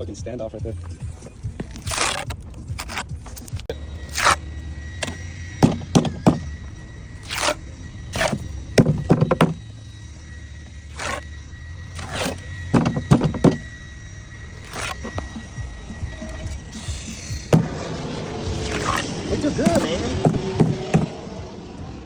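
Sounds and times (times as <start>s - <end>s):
tools thunking and scraping concrete: 0.8s - 4.4s, 5.0s - 6.5s, 7.2s - 9.6s, 10.9s - 11.2s, 12.0s - 13.6s, 14.6s - 15.5s, 18.6s - 19.0s, 19.6s - 21.2s
low rumble: 2.5s - 22.0s
faint steady high tone: 3.7s - 21.3s.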